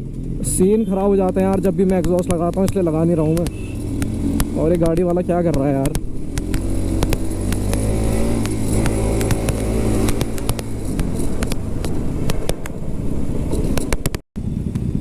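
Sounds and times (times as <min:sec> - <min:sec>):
motorcycle engine running: 0:00.0 - 0:15.0
traffic noise: 0:00.0 - 0:15.0
wind noise: 0:00.0 - 0:15.0
sharp clicks on microphone: 0:01.3 - 0:12.8.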